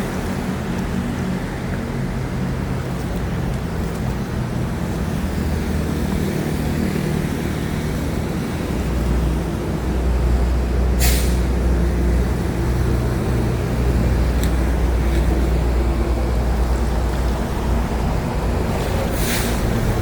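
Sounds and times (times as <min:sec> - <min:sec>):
diesel engine running: 0:00.0 - 0:20.0
short hiss: 0:11.0 - 0:11.5, 0:19.1 - 0:19.7.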